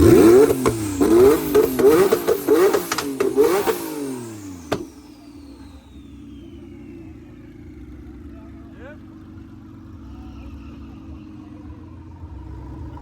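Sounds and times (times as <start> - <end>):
car engine revving: 0.0 - 13.0
exhaust cracks: 0.0 - 13.0.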